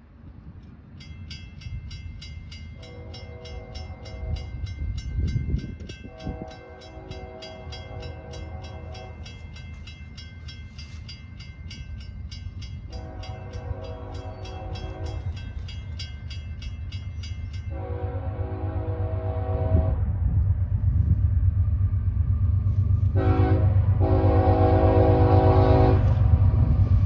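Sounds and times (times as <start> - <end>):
locomotive engine rumble: 0.0 - 27.0
railroad crossing bell ringing: 0.8 - 19.4
locomotive air horn blasts: 2.8 - 4.6, 6.0 - 9.3, 12.9 - 15.4, 17.7 - 20.0, 23.1 - 26.4.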